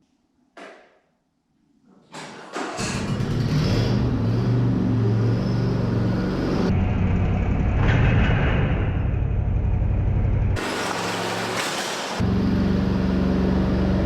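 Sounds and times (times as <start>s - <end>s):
lawn tractor engine running: 10.6s - 12.6s.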